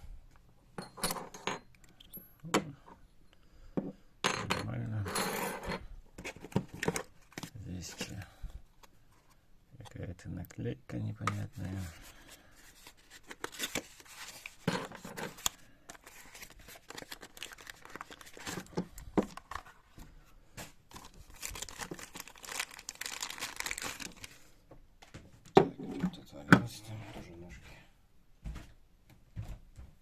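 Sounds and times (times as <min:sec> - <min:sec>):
plastic bags crinkling: 0:12.0 - 0:19.8, 0:20.9 - 0:24.5.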